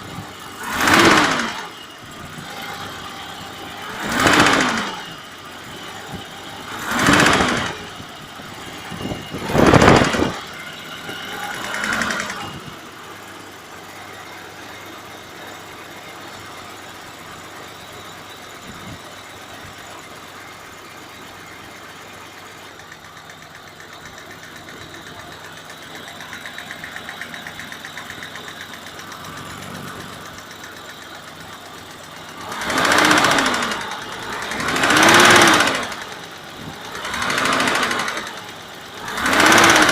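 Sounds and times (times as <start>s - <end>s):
engine revving: 0.0s - 14.3s, 23.9s - 39.9s.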